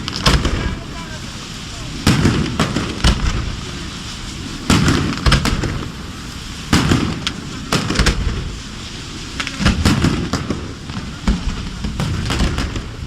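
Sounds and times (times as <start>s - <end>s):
fireworks bursting with bangs: 0.0s - 9.2s
fireworks hiss and crackle: 0.0s - 13.0s.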